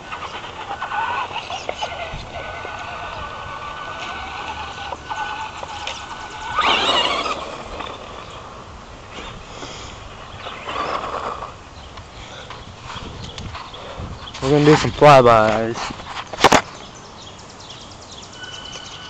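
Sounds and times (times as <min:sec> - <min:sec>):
rc truck motor whining: 0:00.0 - 0:09.4.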